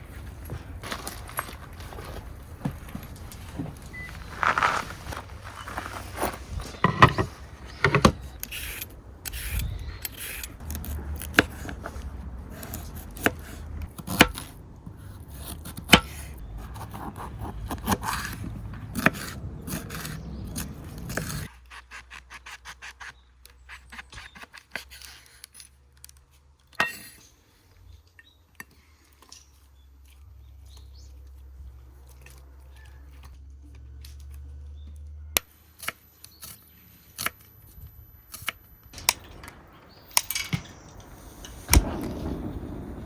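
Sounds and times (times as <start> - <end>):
objects scraping and rubbing: 0.0 - 13.8
sharp clicks and knocks: 6.8 - 9.4, 38.3 - 42.2.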